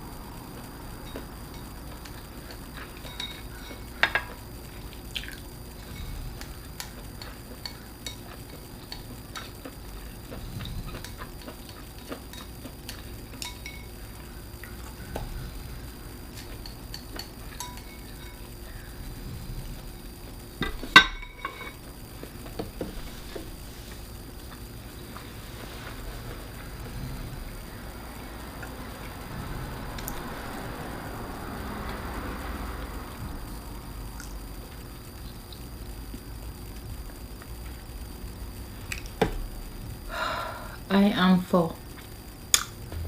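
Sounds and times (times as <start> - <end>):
cutlery clinking on dishes: 3.0 - 4.4, 13.4 - 13.9, 20.6 - 21.8.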